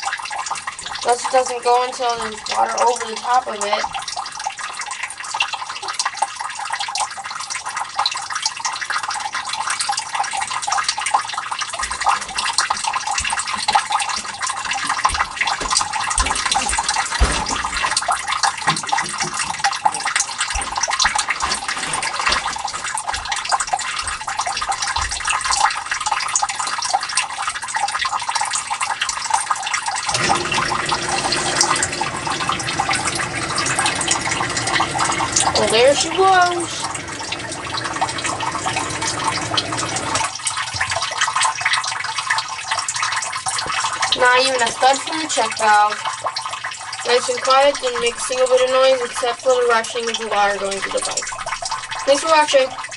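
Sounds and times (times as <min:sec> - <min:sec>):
water trickling and splashing: 0:00.0 - 0:52.9
sump pump rushing: 0:11.5 - 0:26.1, 0:29.9 - 0:42.0.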